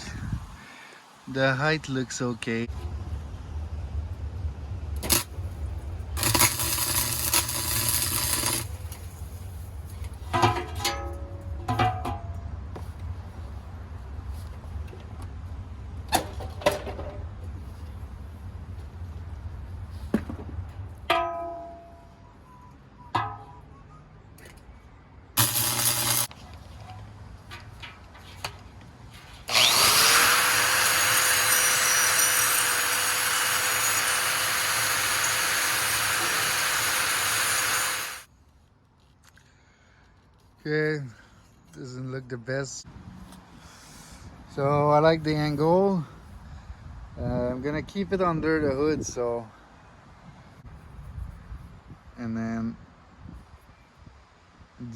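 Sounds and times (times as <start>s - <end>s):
power tool on metal pipe: 6.2s - 9.0s, 25.4s - 26.3s, 29.5s - 38.3s
welding crackling hiss: 6.2s - 9.6s, 25.4s - 26.3s.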